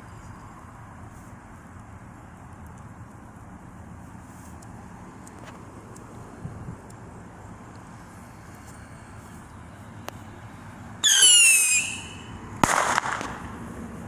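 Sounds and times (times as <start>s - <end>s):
firework whistle: 11.0s - 13.4s
firework bang: 11.0s - 13.6s.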